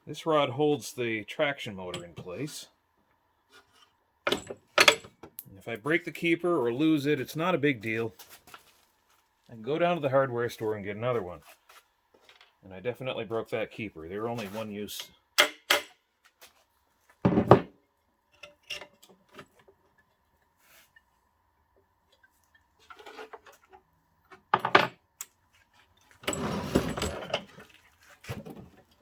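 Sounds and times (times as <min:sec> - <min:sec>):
metal parts clicking and knocking: 0:04.3 - 0:05.1.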